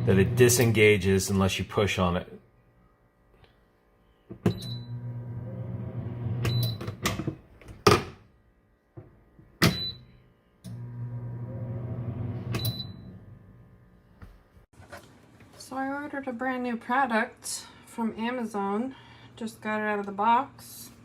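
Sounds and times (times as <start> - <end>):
air fryer humming: 0.0 - 2.2, 4.5 - 7.0, 10.7 - 13.8.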